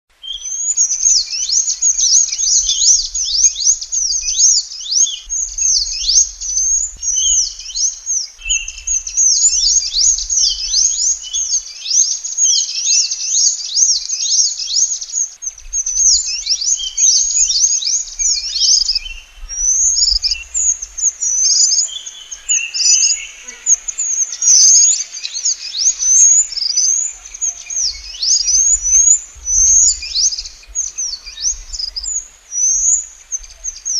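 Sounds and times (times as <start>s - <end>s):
birds chirping with high whistles: 0.1s - 33.9s.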